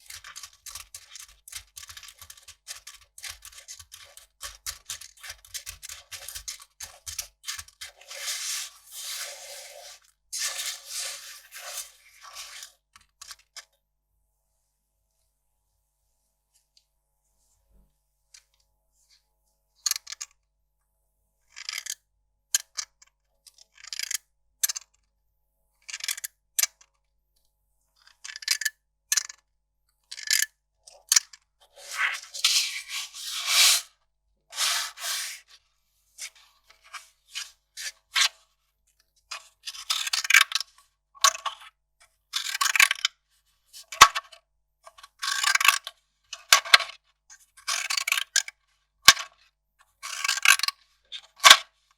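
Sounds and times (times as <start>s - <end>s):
paper crinkling by hand: 0.0s - 12.8s.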